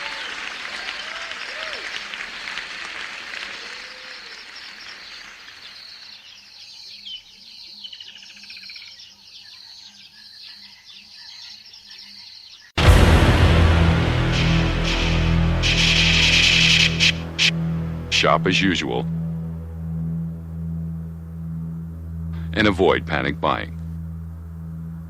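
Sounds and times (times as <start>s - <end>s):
applause: 0.0s - 6.2s
birds chirping: 0.0s - 12.8s, 14.3s - 25.0s
steady high-pitched background: 12.8s - 25.0s.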